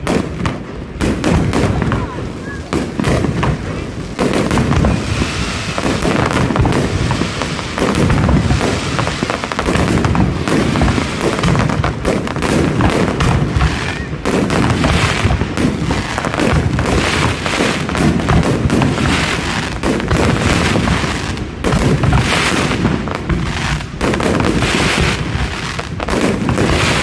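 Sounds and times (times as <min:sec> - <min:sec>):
deep fireworks booms: 0:00.0 - 0:27.0
fireworks bangs and crackles: 0:00.0 - 0:27.0.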